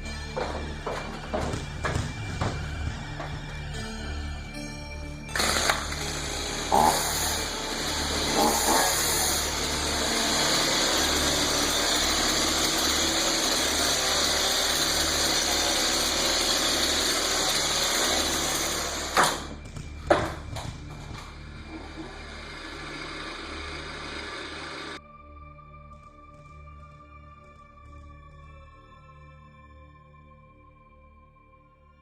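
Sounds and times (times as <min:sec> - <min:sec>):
chainsaw engine running: 0:05.3 - 0:25.0.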